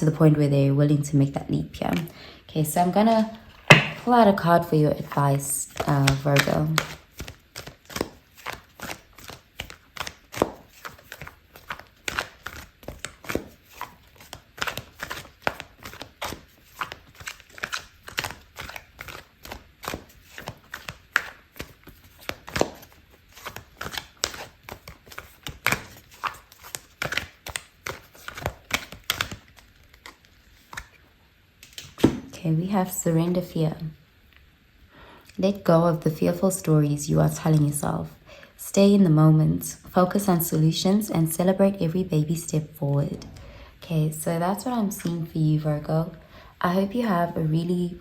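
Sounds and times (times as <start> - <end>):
cards being shuffled: 3.1 - 4.1, 5.7 - 31.0.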